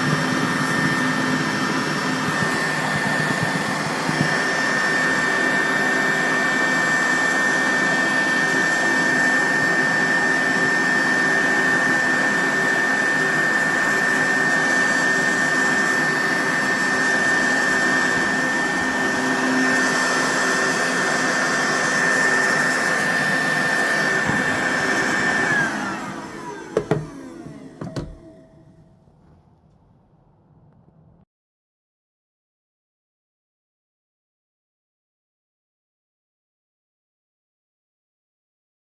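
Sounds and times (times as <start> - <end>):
handheld vacuum whining: 0.0 - 29.2
vacuum motor winding down: 0.0 - 29.2.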